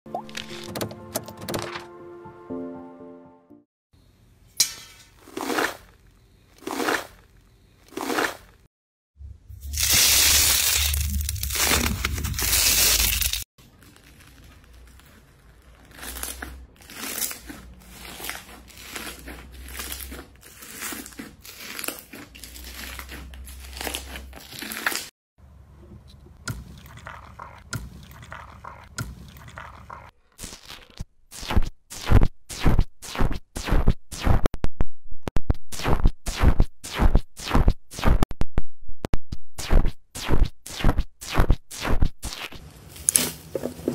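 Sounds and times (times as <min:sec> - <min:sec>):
slime crunching and crackling: 0:09.7 - 0:25.1.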